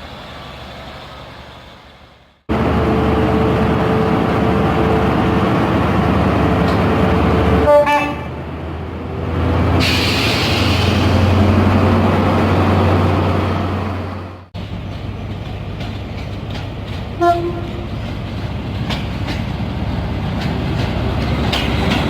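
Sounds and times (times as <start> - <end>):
train rumbling: 0.0 - 22.0
train horn: 7.5 - 8.4, 17.2 - 17.9.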